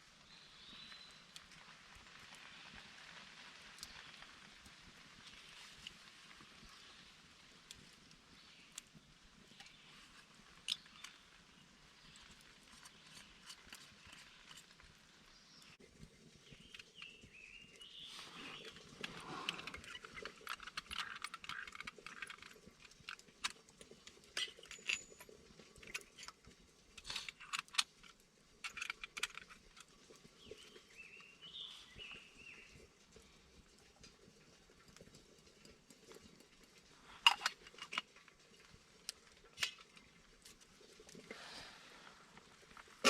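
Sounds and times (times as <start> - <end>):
small hard objects clicking: 10.5 - 11.3, 16.4 - 31.3, 34.8 - 41.3.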